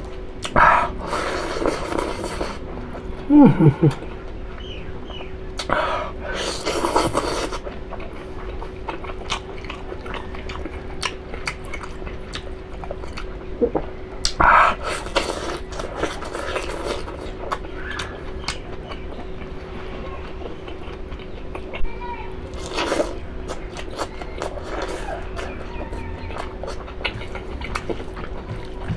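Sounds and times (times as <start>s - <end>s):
faint steady hum: 0.0s - 28.9s
wet chewing and biting: 6.6s - 19.6s, 20.2s - 21.8s, 22.5s - 28.9s.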